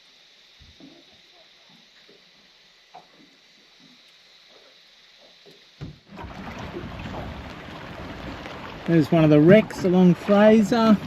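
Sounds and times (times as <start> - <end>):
water lapping against boat: 3.0 - 11.0.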